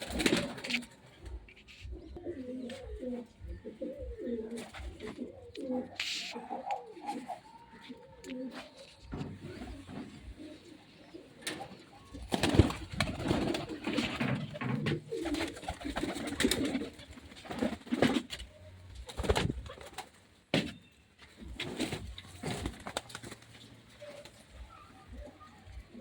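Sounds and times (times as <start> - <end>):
pigeons cooing: 0.0 - 19.9.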